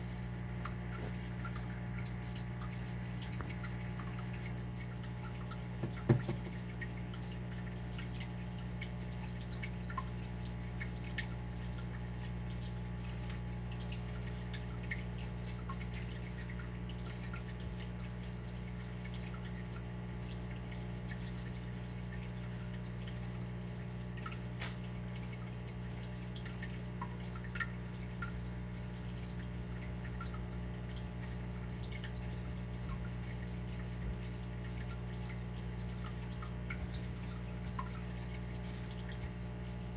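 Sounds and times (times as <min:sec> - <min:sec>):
steady low hum: 0:00.0 - 0:23.4
water dripping: 0:00.0 - 0:39.9.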